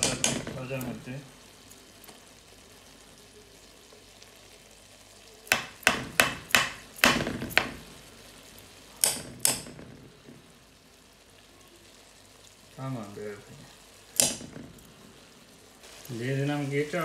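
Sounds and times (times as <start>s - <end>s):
utensil knocking against pot: 0.0s - 0.5s.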